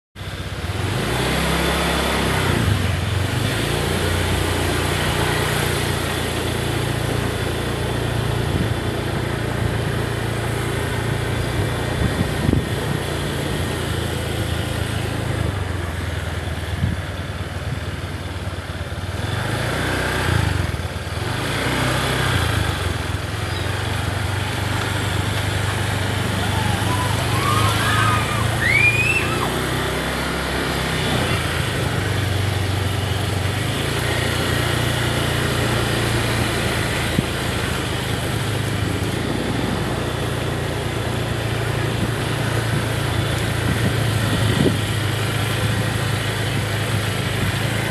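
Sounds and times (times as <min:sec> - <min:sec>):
small engine running: 0:18.2 - 0:47.9
even rushing noise: 0:23.9 - 0:32.6.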